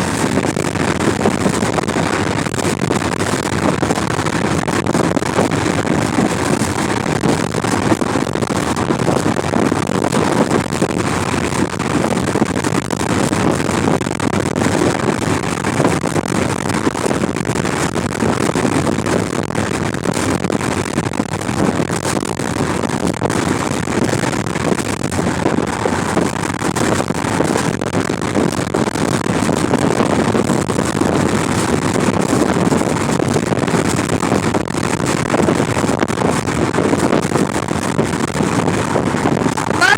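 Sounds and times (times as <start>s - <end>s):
wind buffeting microphone: 0.0s - 31.4s.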